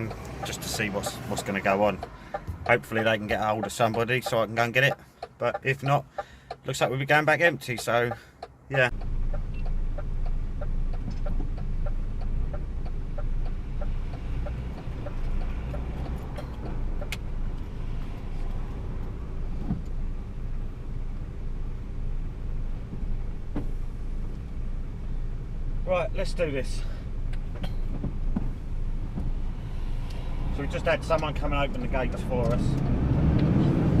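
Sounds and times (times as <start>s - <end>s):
rapid regular ticking: 0.0s - 17.3s.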